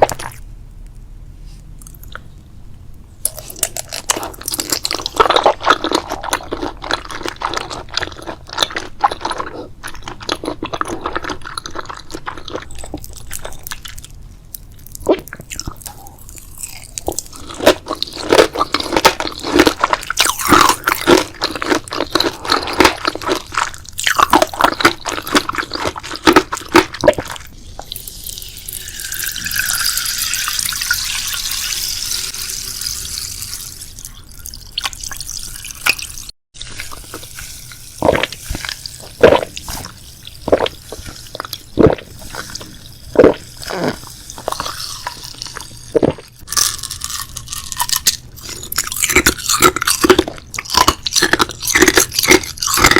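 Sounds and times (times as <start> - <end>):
crunchy chewing: 3.2 - 27.5, 36.6 - 52.9.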